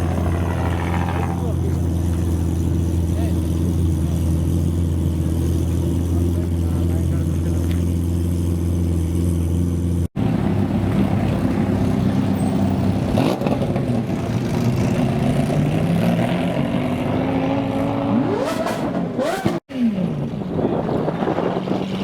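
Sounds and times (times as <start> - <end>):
car engine idling: 0.0 - 13.2
car engines driving: 0.0 - 22.0.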